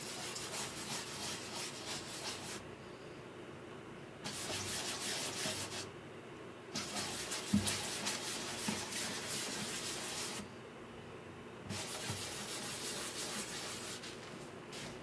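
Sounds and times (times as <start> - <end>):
hand sanding wood: 0.0 - 2.6, 4.3 - 5.9, 6.8 - 10.4, 11.7 - 14.3.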